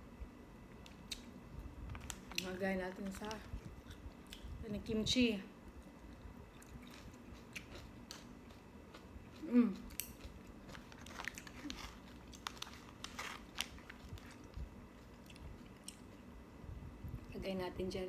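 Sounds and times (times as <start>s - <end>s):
chewing and biting food: 5.7s - 16.2s.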